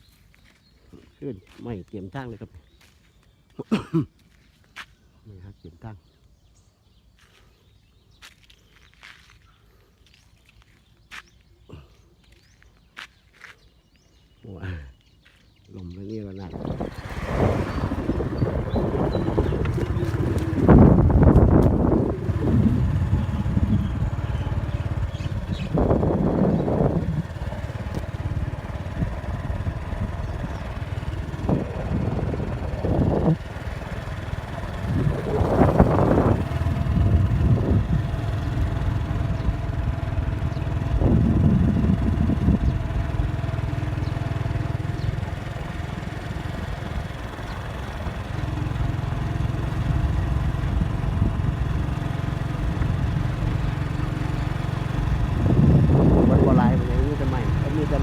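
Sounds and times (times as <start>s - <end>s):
strong wind buffeting microphone: 16.4s - 58.0s.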